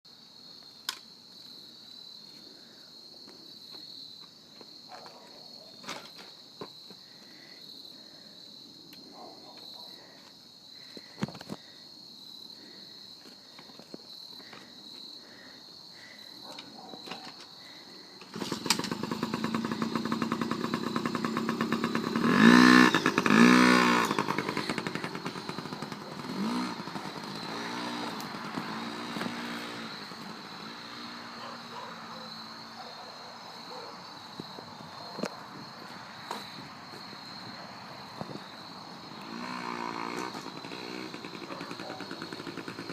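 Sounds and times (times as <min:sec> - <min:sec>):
high insect buzz: 0:17.5 - 0:42.9
dirt bike engine revving: 0:18.2 - 0:32.8, 0:39.1 - 0:42.9.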